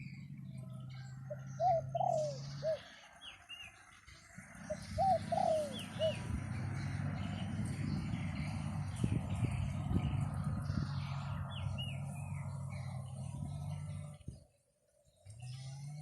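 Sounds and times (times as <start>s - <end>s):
dove cooing: 0.0s - 3.2s, 4.4s - 7.5s
small bird chirping: 0.0s - 14.4s
wind rumbling on microphone: 4.3s - 14.5s.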